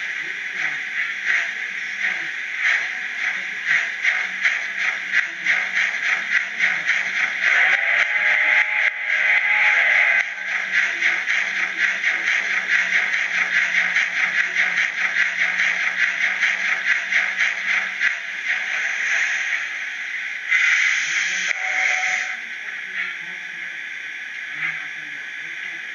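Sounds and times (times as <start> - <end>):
model locomotive steam chuffing: 0.0 - 25.9
steam hiss: 18.4 - 23.4.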